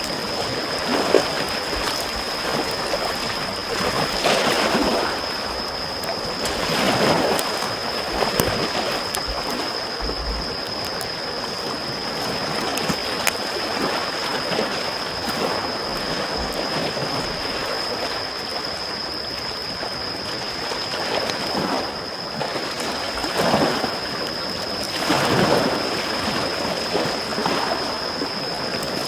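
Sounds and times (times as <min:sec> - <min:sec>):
campfire crackling: 0:00.0 - 0:18.6
small waves washing: 0:00.0 - 0:18.6.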